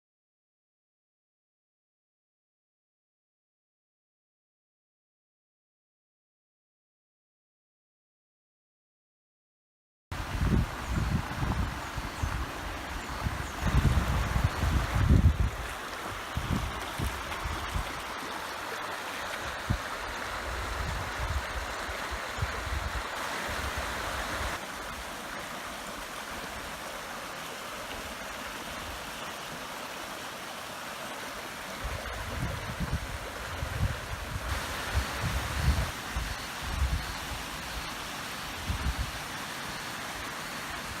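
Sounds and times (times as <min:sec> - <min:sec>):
waterfall rushing: 0:10.2 - 0:41.0.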